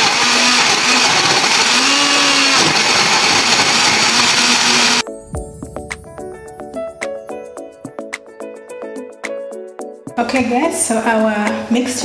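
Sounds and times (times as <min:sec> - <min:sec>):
blender running: 0:00.0 - 0:05.0
music: 0:05.0 - 0:12.0.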